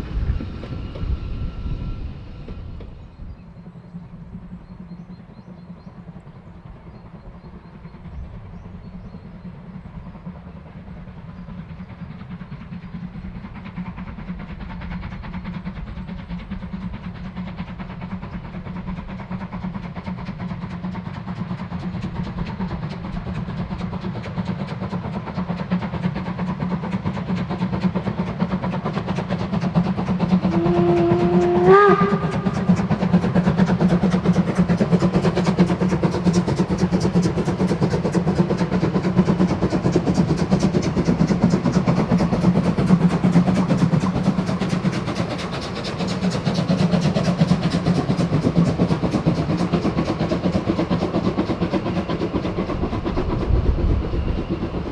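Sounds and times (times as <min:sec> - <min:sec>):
steam locomotive exhaust beats: 0:00.0 - 0:54.9
steam whistle blast: 0:30.4 - 0:32.9.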